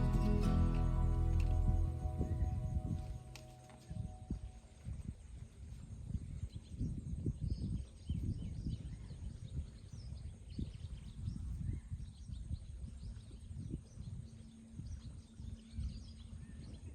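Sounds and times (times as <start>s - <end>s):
uneven low rumble: 0.0s - 4.6s.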